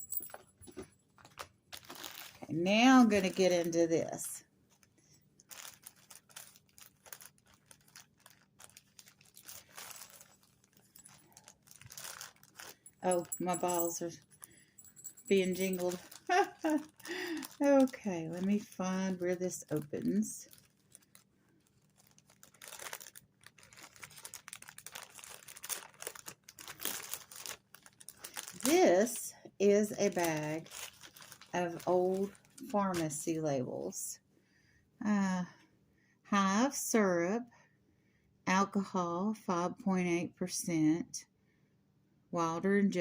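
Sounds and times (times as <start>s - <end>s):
packaging crinkling: 1.2s - 3.7s, 4.7s - 29.2s, 29.9s - 33.1s.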